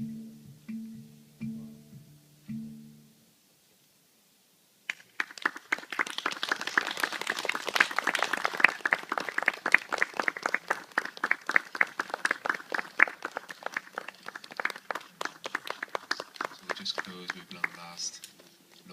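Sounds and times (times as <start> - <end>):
plucked acoustic guitar notes: 0.0 - 3.3
audience clapping: 4.9 - 18.3.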